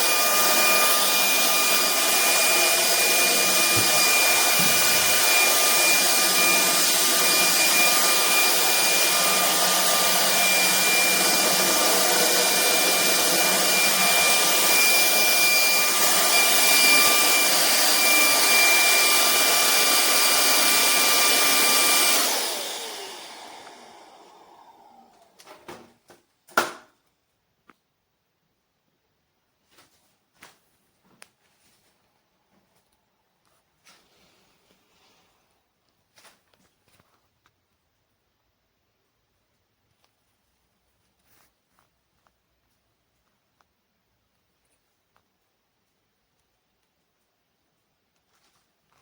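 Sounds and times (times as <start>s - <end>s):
stick vacuum cleaner whining: 0.0s - 26.9s.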